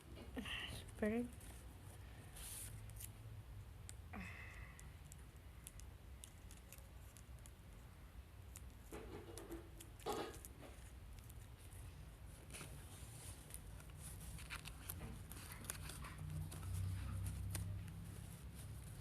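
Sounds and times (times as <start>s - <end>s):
paper rustling: 8.9s - 19.0s
adhesive tape and paper handling: 12.5s - 18.9s.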